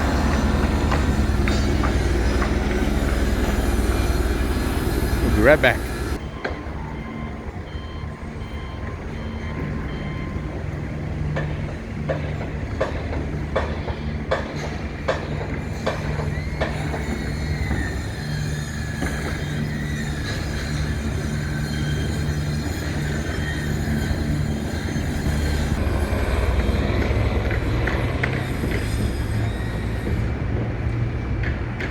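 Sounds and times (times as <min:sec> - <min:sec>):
long high falling squeal: 0:00.0 - 0:10.4, 0:15.6 - 0:30.4
low city hum: 0:00.0 - 0:31.9.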